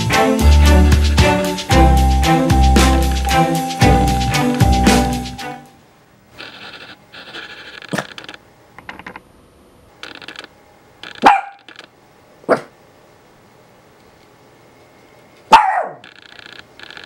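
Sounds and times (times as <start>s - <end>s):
dog barking: 11.2s - 11.7s, 12.5s - 12.8s, 15.5s - 16.0s.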